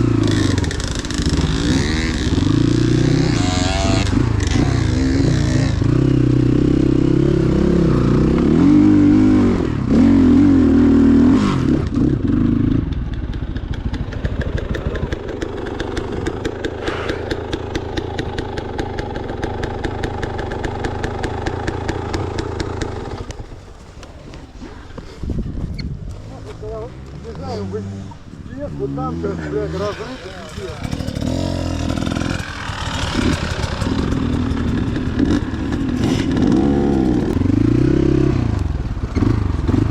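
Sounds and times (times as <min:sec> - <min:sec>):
motorcycle engine revving: 0:00.0 - 0:25.4, 0:26.0 - 0:39.9.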